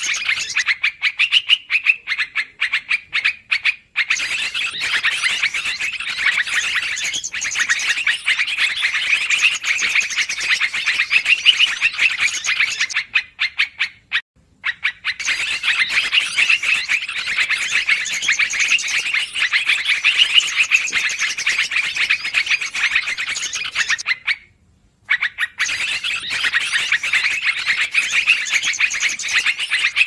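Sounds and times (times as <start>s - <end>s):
bird chattering: 0.0s - 24.4s, 25.1s - 30.0s.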